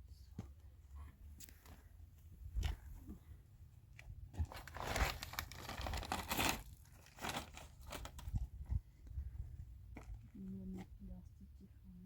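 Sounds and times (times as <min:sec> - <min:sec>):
material crinkling and tearing: 0:04.4 - 0:08.5.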